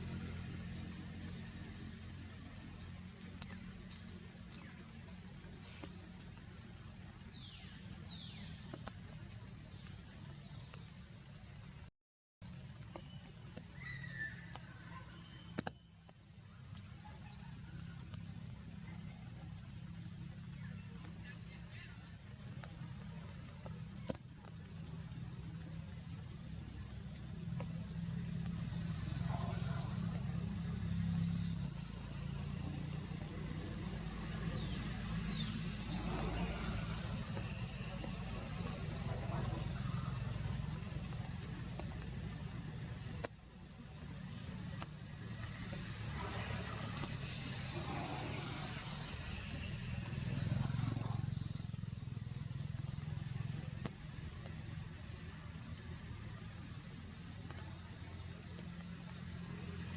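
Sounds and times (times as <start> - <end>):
low engine rumble: 0.0 - 59.9
even hiss: 27.8 - 59.9.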